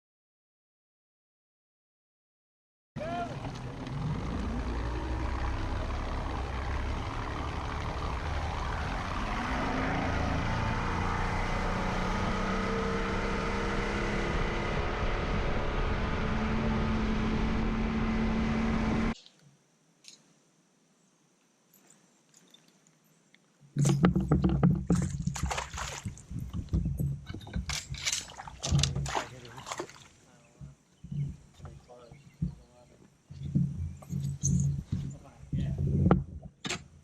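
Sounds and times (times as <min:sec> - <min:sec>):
engine running at speed: 0:03.0 - 0:19.2.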